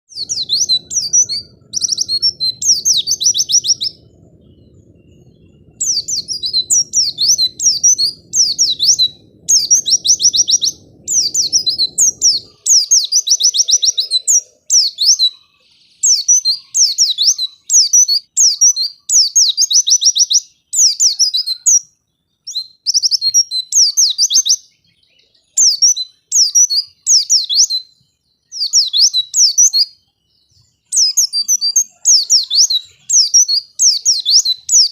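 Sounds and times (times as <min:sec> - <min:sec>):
bird chirping: 0:00.0 - 0:34.9
faint low hum: 0:00.1 - 0:12.8.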